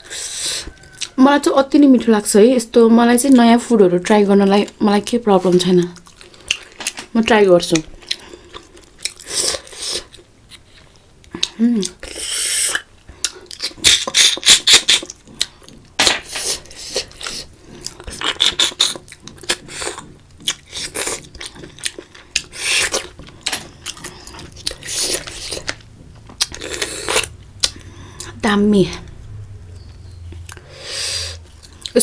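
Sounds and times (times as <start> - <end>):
slurping snails from shells: 12.0 - 15.4, 16.2 - 28.4.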